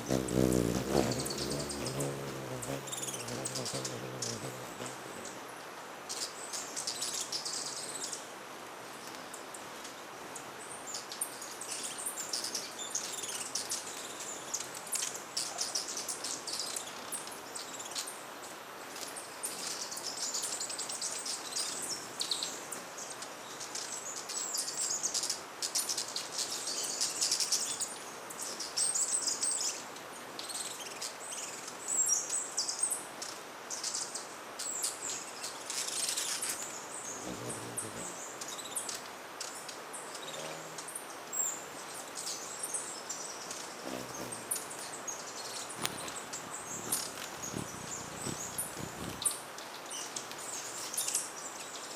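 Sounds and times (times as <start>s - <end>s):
hummingbirds chipping and twittering: 0.0s - 5.4s, 34.6s - 51.8s
steady background hiss: 0.0s - 51.9s.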